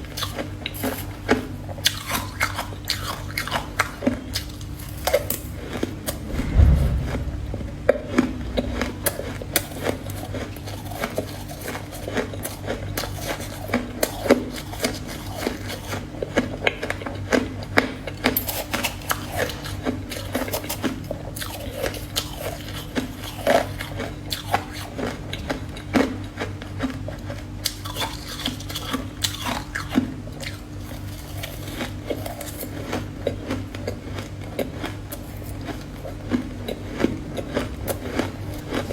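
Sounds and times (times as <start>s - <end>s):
steady low hum: 5.4s - 10.6s
heavy low thud: 6.0s - 9.6s.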